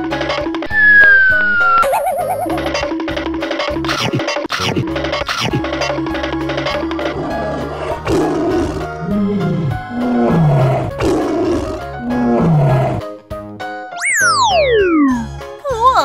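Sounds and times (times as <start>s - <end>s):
background music: 0.0s - 16.0s
cartoon tiger roar: 7.0s - 13.1s.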